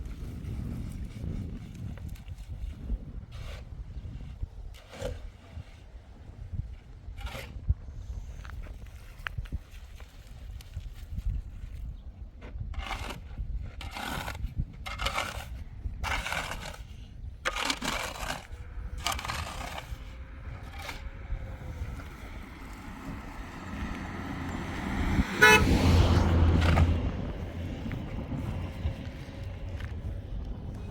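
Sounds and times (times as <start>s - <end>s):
rasping scraping strokes: 12.7s - 30.1s
low rumble: 18.5s - 30.9s
short horn-like blast: 25.2s - 26.2s.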